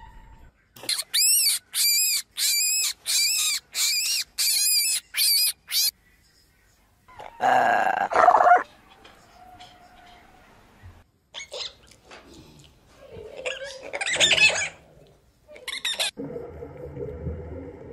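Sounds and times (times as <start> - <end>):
young animal squeaking calls: 0.8 - 5.9.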